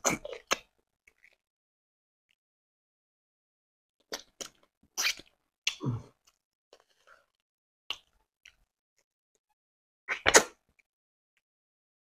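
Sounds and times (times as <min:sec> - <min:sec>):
wet smacks and clicks: 0:07.9 - 0:08.7.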